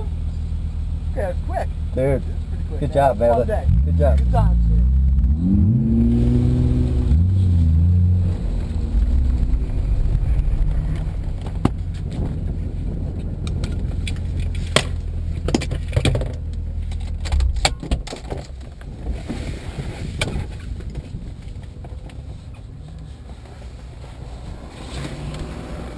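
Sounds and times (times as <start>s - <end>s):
car engine running: 0.0s - 25.9s
sharp clicks and knocks: 13.2s - 18.9s.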